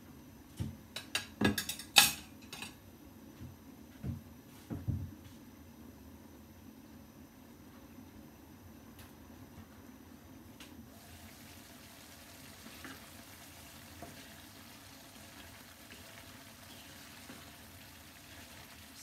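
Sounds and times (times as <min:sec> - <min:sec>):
vegetables sizzling in a frying pan: 0:10.9 - 0:19.0.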